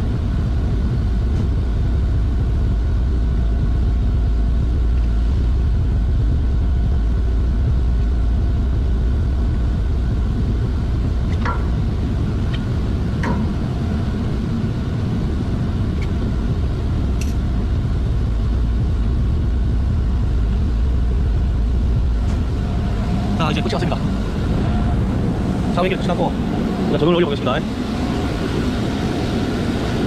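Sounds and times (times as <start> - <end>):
faint whining tones: 0.0 - 30.0
low machinery hum: 0.0 - 30.0.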